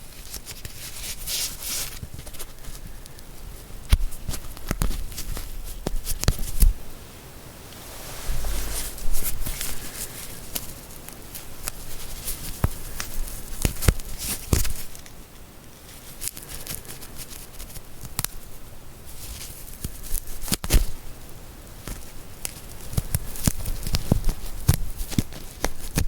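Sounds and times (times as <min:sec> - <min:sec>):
soft rustling: 0:00.0 - 0:06.8, 0:07.4 - 0:15.1.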